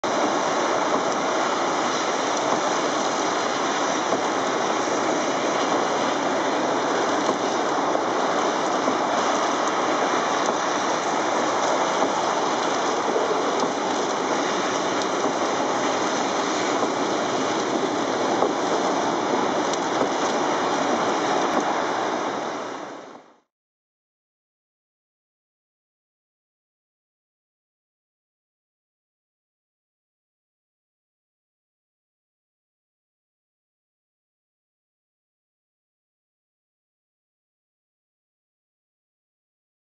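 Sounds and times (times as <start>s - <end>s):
torrential rain: 0.0s - 23.5s.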